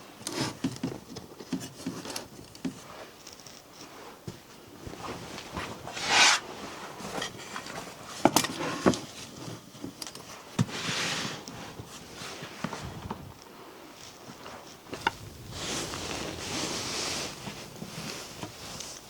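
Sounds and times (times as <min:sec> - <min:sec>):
rustling swishes: 0:05.7 - 0:06.7, 0:14.9 - 0:19.0.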